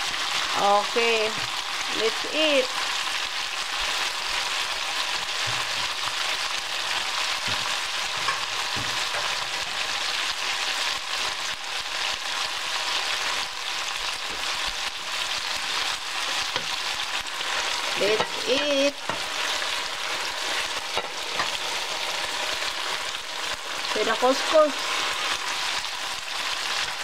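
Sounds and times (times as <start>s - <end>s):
stir-fry sizzling in a skillet: 0.0s - 27.0s.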